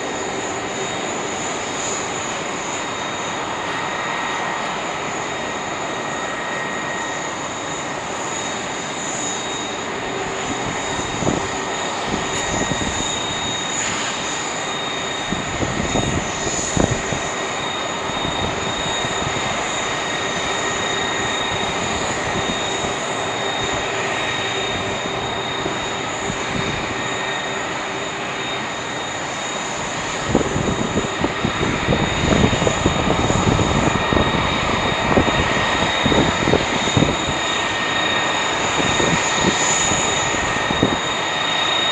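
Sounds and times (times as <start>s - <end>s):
jet engines whining: 0.0s - 41.9s.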